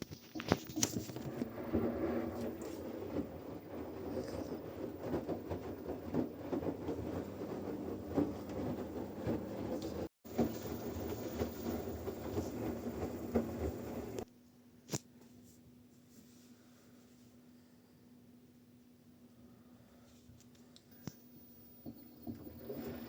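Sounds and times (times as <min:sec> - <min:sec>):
washing machine drum rumbling: 0:00.4 - 0:14.2, 0:21.6 - 0:23.0.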